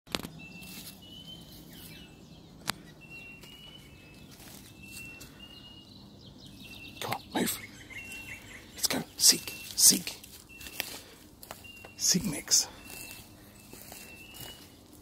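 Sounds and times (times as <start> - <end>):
high whistled bird calls: 0.4 - 14.8
rustle of leaf litter: 0.6 - 2.0.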